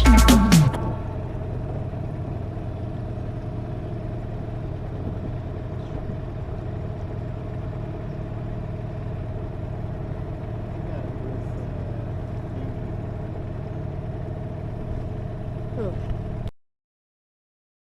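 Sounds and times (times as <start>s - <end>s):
outboard motor running: 0.0s - 16.5s.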